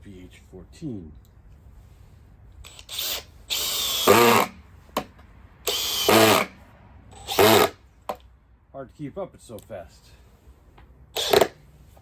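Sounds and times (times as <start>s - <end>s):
drill driving screw into wood: 2.6s - 6.6s, 7.2s - 7.8s, 11.2s - 11.6s.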